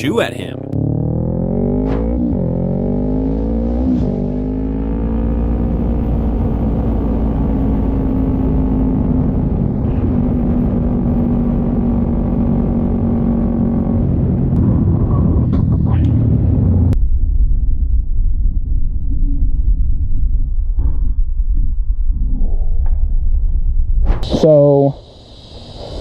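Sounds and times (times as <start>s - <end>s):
motorcycle engine accelerating: 0.7s - 9.8s.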